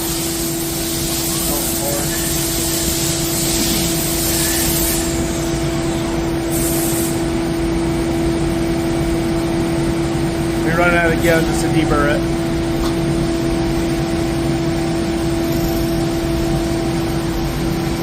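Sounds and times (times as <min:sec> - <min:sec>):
high spraying hiss: 0:00.0 - 0:07.2
lathe machine hum: 0:00.0 - 0:18.0.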